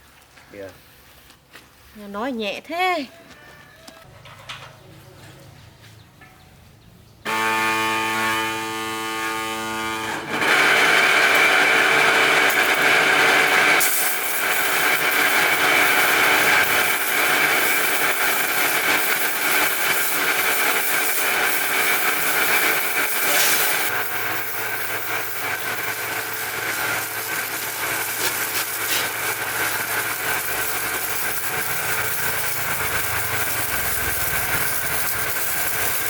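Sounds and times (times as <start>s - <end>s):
machine whine: 7.3s - 36.0s.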